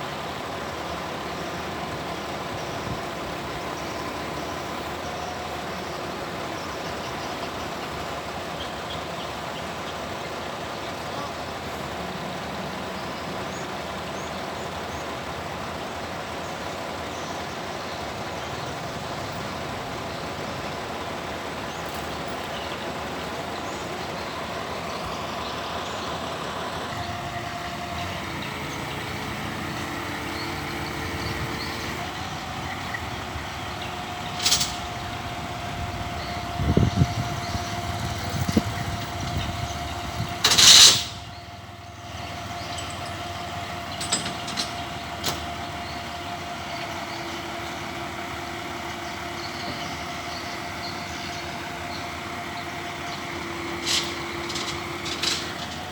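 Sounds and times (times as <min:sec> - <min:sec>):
excavator diesel engine and hydraulics: 0:00.0 - 0:55.9
held whining tone: 0:17.6 - 0:55.9.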